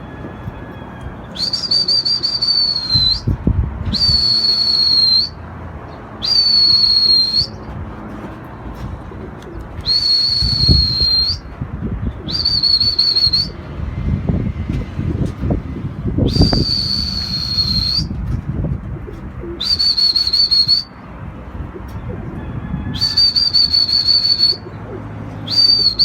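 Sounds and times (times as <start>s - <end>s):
low rumbling noise: 0.0s - 19.9s
person whistling high notes: 1.4s - 5.4s, 6.2s - 7.6s, 9.9s - 11.5s, 12.3s - 13.6s, 16.3s - 18.1s, 19.6s - 20.9s, 23.0s - 24.6s, 25.5s - 26.0s.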